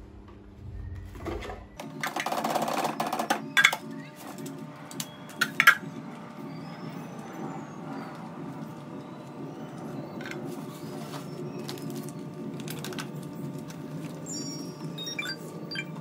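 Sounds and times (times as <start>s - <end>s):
steady low hum: 0.0s - 1.9s
plastic handling noises: 10.1s - 14.3s.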